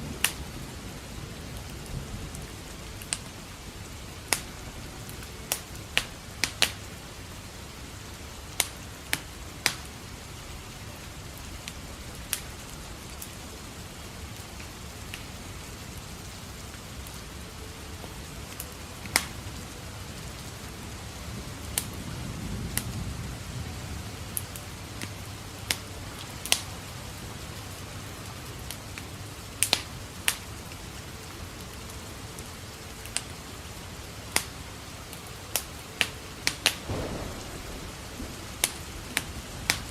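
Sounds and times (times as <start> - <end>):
distant thunder rumble: 0.0 - 7.4, 18.9 - 28.3, 36.7 - 39.9
steady rain: 0.0 - 39.9
wood fire crackling: 0.0 - 39.9.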